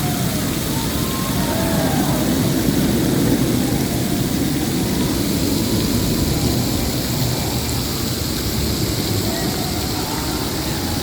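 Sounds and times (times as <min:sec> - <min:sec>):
steady low rumbling: 0:00.0 - 0:11.0.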